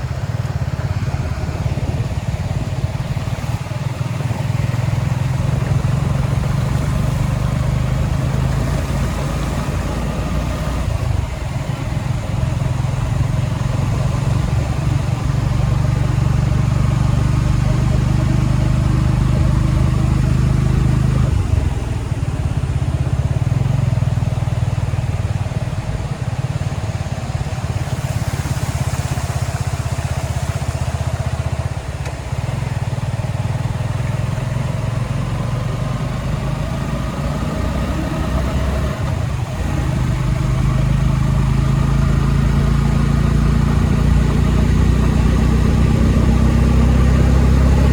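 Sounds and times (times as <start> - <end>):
vehicle engine running: 0.0 - 47.9.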